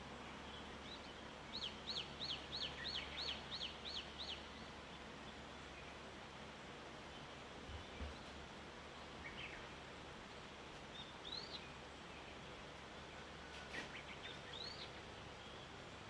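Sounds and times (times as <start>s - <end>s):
faint background hiss: 0.0s - 16.0s
small birds chirping: 0.0s - 16.0s.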